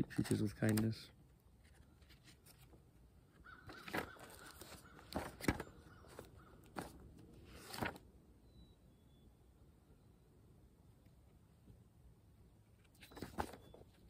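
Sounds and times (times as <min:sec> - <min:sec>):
bird calling faintly: 0:03.3 - 0:07.0.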